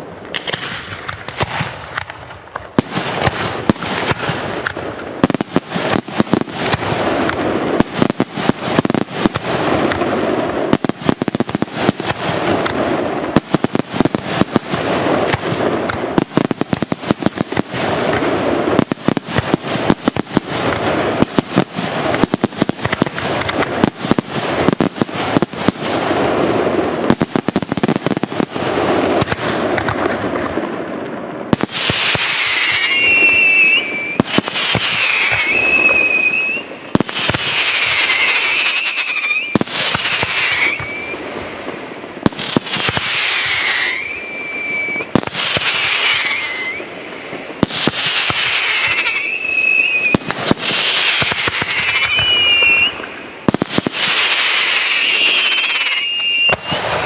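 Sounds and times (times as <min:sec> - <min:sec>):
fireworks barrage bangs: 0:00.0 - 0:57.0.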